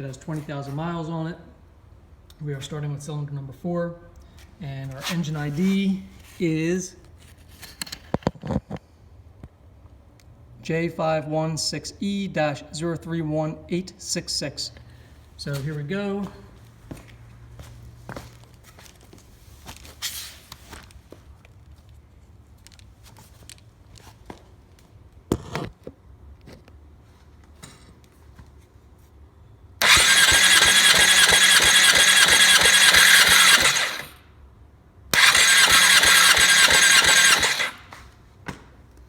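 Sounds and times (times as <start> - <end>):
faint clicks and handling noises: 18.4 - 28.7
motorcycle engine cranking on starter: 29.8 - 34.2, 35.2 - 38.0.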